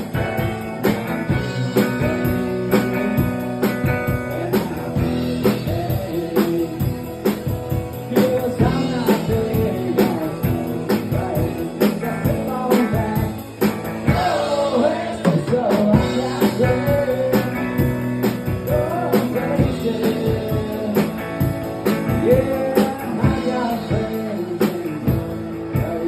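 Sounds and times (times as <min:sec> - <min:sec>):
steady drum beat: 0:00.0 - 0:26.0
person singing: 0:00.1 - 0:26.0.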